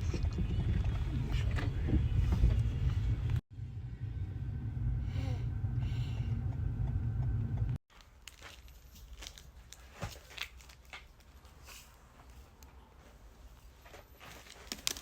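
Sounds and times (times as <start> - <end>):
vehicle rumble: 0.0 - 7.8.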